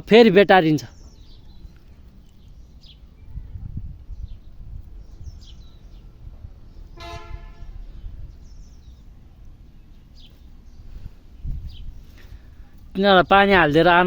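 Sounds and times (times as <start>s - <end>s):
short horn toot: 7.0s - 7.9s.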